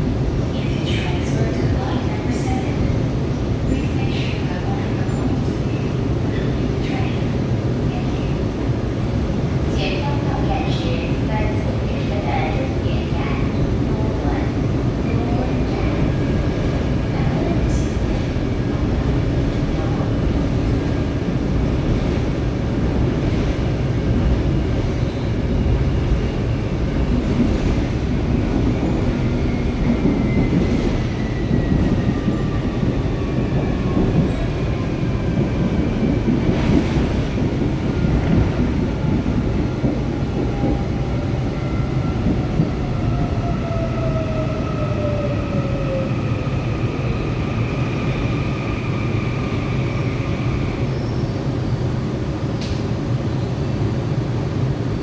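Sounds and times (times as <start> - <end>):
subway train rumble: 0.0 - 55.0.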